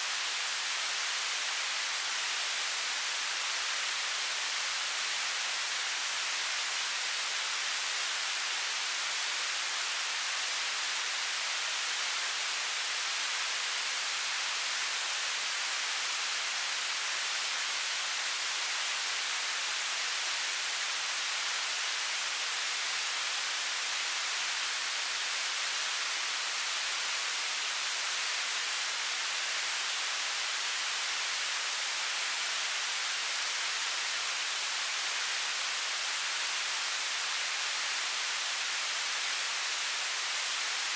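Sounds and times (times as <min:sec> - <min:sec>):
television static hiss: 0:00.0 - 0:40.9.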